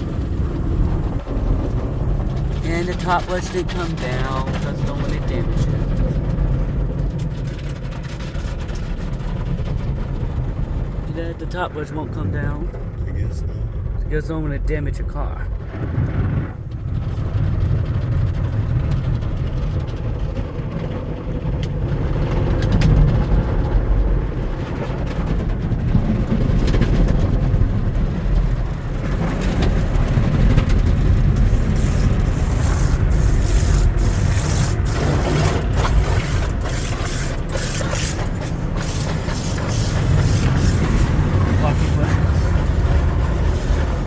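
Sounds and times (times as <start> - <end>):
car wash water spray rumble: 0.0 - 44.0
brushes slapping car body: 31.4 - 42.8.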